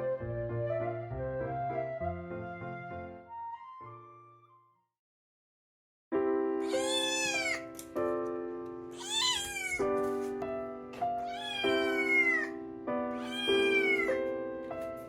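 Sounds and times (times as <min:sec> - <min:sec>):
cat meowing: 0:06.6 - 0:07.8, 0:08.9 - 0:10.0, 0:11.2 - 0:14.3.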